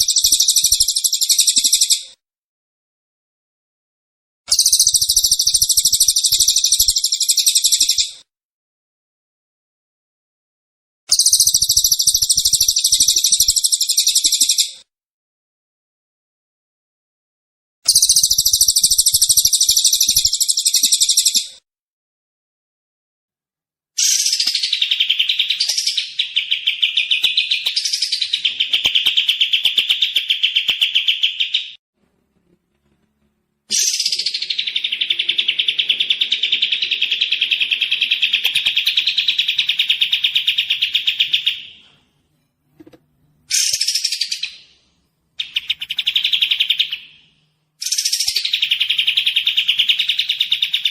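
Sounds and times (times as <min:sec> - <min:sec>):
songbird singing rapid trills: 0:11.1 - 0:14.6, 0:17.9 - 0:21.5.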